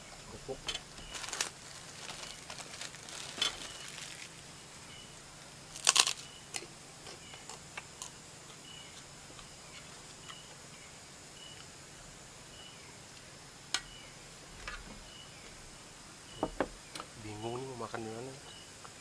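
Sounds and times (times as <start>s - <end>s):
high insect chirp: 0.0s - 18.9s
crackers being crunched: 0.7s - 4.6s, 5.4s - 8.6s.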